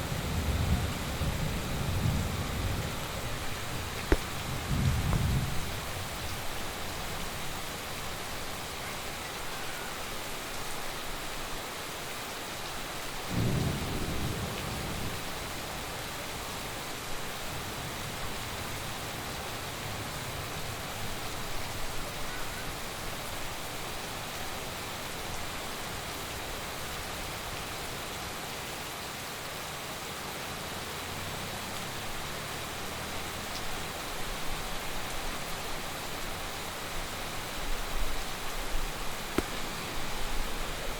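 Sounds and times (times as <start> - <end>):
thunder rumble: 0.0 - 6.4, 13.3 - 15.6
heavy rain falling: 0.0 - 40.9.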